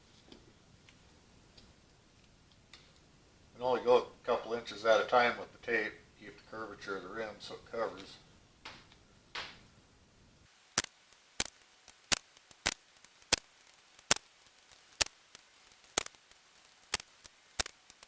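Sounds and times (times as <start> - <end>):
short sharp clicks: 16.9 - 18.0.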